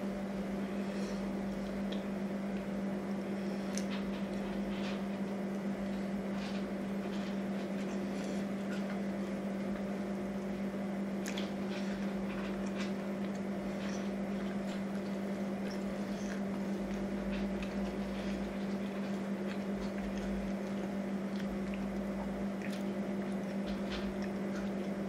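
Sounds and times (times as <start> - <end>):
steady low hum: 0.0 - 25.0
person chewing: 11.2 - 25.0.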